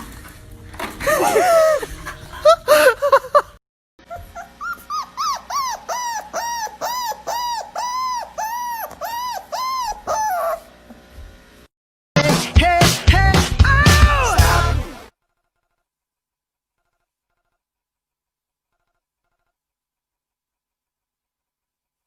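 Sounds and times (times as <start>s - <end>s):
dog whimpering and yipping: 4.0s - 10.7s
dog whining: 4.0s - 10.8s.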